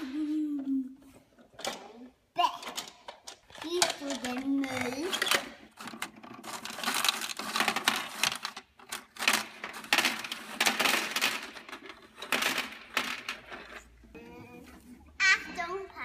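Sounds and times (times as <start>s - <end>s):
small pieces rattling against plastic: 2.6s - 14.0s.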